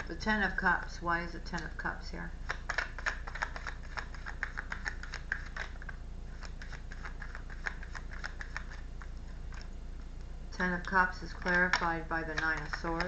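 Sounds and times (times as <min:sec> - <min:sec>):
low steady hum: 0:00.0 - 0:13.0
cards being shuffled: 0:02.4 - 0:09.7, 0:11.3 - 0:13.0.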